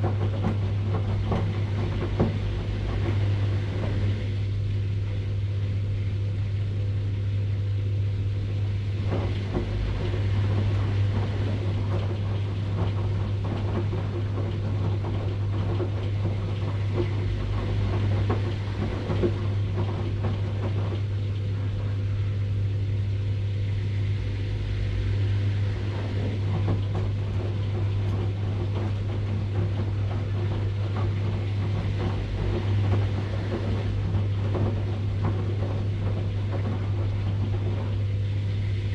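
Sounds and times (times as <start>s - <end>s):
washing machine churning: 0.0s - 38.9s.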